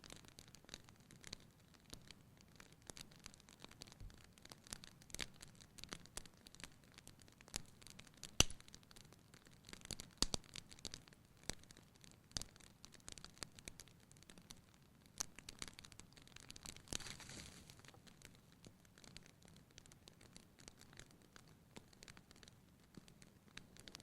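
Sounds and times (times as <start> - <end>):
soft fire hiss: 0.0 - 24.0
wood fire crackling: 0.0 - 24.0.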